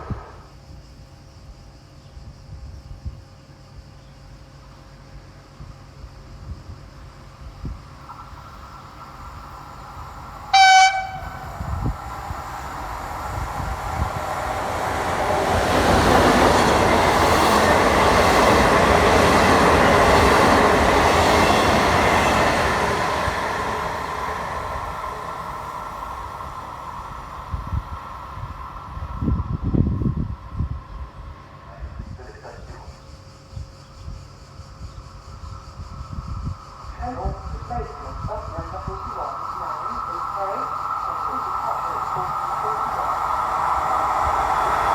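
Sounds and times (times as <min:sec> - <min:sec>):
train rushing and rumbling past: 0:00.0 - 0:01.4, 0:05.0 - 0:44.9
train horn blast: 0:10.5 - 0:11.6.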